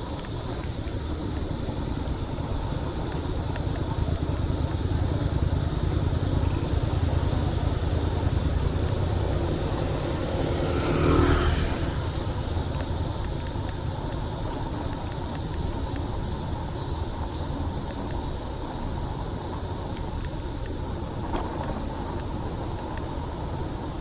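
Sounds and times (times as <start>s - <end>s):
road traffic: 0.0s - 24.0s
low rumble: 1.1s - 15.1s
motor vehicle passing close: 7.3s - 13.1s.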